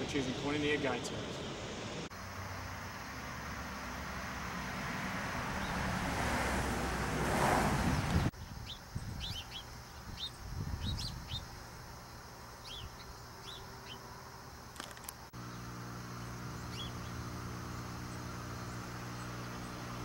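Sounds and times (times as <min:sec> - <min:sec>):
small birds chirping: 0:08.1 - 0:20.0
steady low hum: 0:09.0 - 0:20.0.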